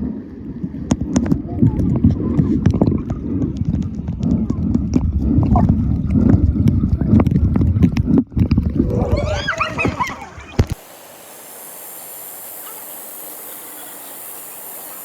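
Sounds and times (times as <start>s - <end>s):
high wavering whines: 8.8s - 15.0s
hiss of flowing water: 8.8s - 15.0s
stream water splashing: 9.0s - 15.0s.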